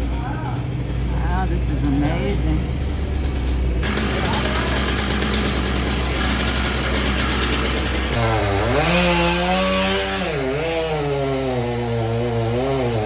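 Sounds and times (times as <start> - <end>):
chainsaw engine revving: 3.8 - 13.0.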